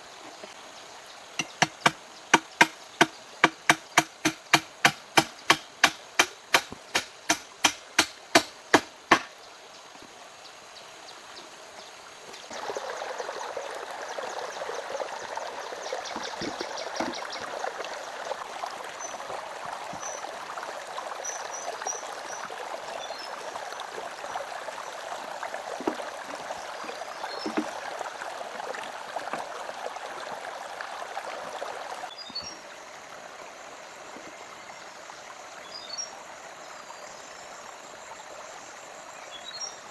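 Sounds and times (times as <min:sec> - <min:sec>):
running water rushing: 0:00.0 - 0:37.1
hammer blows: 0:01.4 - 0:09.3.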